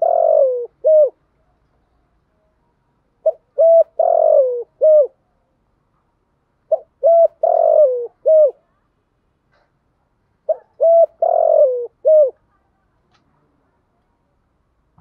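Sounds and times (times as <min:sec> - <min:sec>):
dove cooing: 0:00.0 - 0:01.2, 0:03.2 - 0:05.2, 0:06.7 - 0:08.7, 0:10.5 - 0:12.4.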